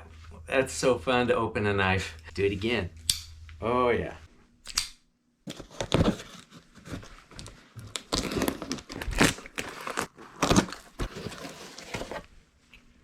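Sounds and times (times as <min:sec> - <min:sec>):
cardboard box rustling: 0:05.5 - 0:12.3.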